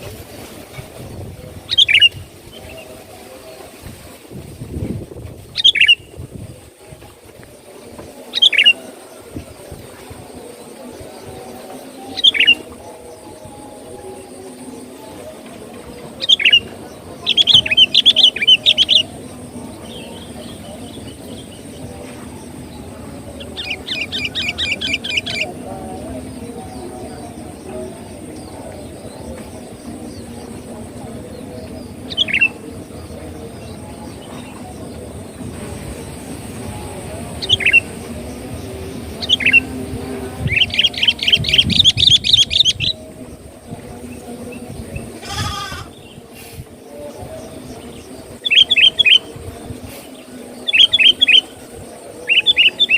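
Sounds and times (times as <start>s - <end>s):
bulbul calling: 5.6s - 6.1s.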